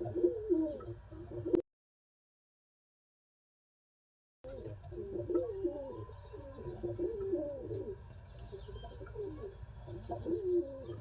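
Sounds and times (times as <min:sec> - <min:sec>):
pigeons cooing: 0:00.0 - 0:01.6, 0:04.4 - 0:11.0.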